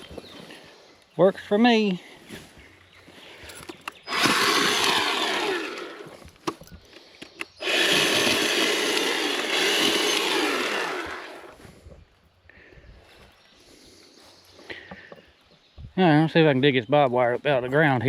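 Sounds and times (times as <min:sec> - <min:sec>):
chainsaw cutting wood: 0:03.9 - 0:11.6.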